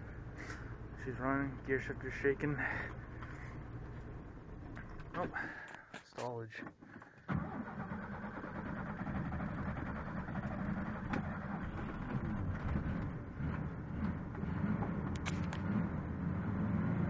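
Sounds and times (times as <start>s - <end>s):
truck engine running: 0.0s - 5.7s, 7.4s - 16.2s.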